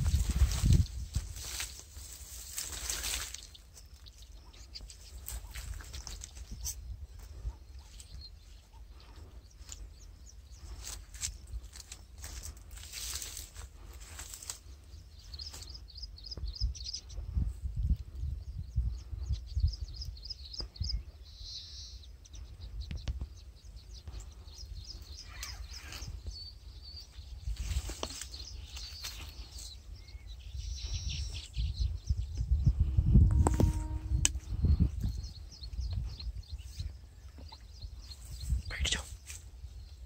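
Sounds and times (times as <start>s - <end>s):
wind rumble on microphone: 0.0s - 3.3s, 15.0s - 40.0s
small birds chirping: 0.0s - 40.0s.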